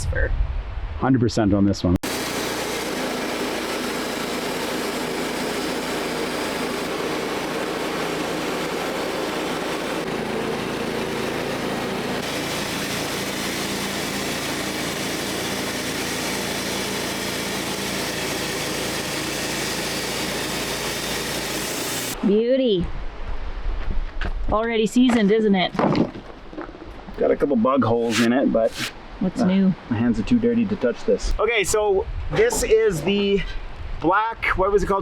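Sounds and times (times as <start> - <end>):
sawmill engine milling log: 2.0 - 22.2.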